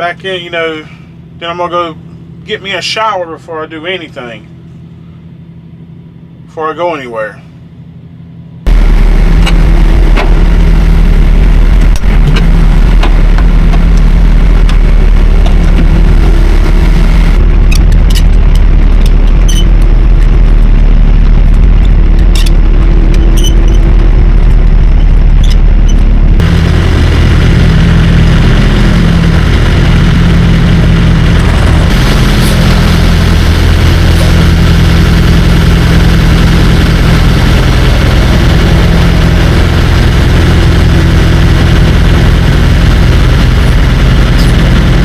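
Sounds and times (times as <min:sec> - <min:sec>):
diesel truck engine idling: 0:07.6 - 0:45.0
sharp clicks and knocks: 0:17.4 - 0:26.1.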